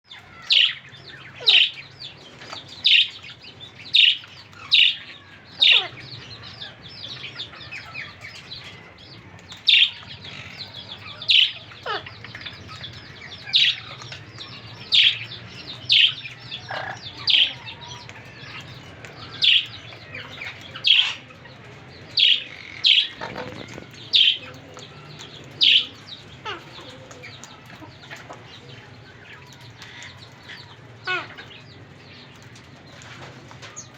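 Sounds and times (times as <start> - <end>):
parrots chattering softly: 4.0 - 6.1, 9.7 - 21.3, 22.2 - 28.6, 29.8 - 31.6
parrots loud sharp calls: 11.3 - 12.2, 15.9 - 17.6.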